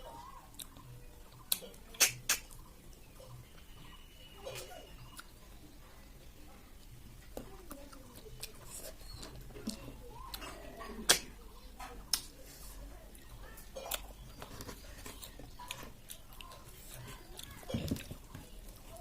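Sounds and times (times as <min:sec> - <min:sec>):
chewing: 0:00.0 - 0:03.4, 0:04.4 - 0:06.0, 0:06.6 - 0:19.0
sharp clicks and taps while eating: 0:00.5 - 0:03.1, 0:09.2 - 0:12.4.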